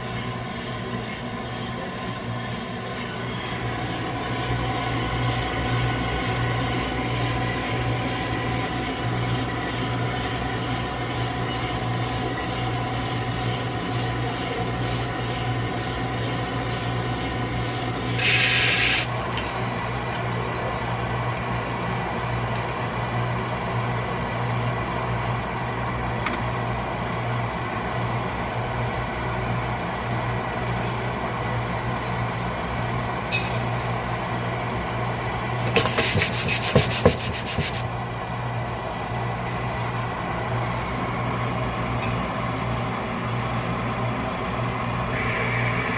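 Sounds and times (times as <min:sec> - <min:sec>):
roaster motor humming: 0:00.0 - 0:45.9
coffee beans rattling: 0:18.1 - 0:19.6, 0:35.6 - 0:37.8.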